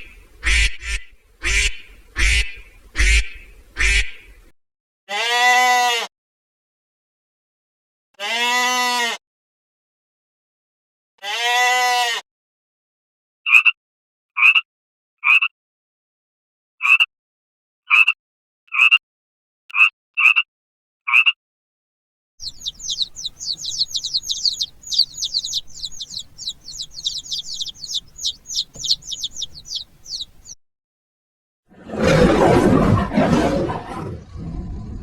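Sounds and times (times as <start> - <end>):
animal giving short calls: 22.4 - 30.6
bird singing high chirps: 22.4 - 30.6.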